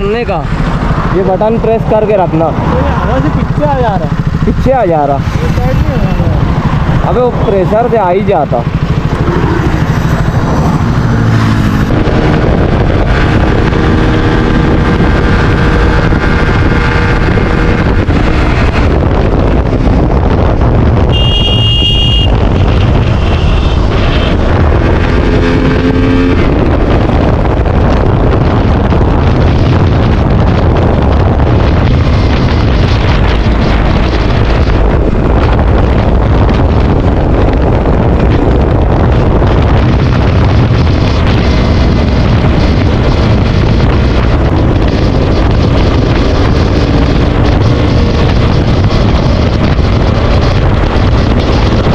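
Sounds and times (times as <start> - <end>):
motorcycle engine running: 0.0 - 51.9
wind rushing over microphone: 0.0 - 51.9
short high-pitched beep: 21.1 - 22.3.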